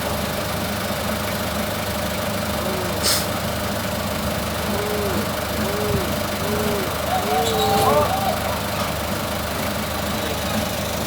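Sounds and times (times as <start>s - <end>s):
forklift engine idling: 0.0s - 11.0s
short hiss: 3.0s - 3.3s.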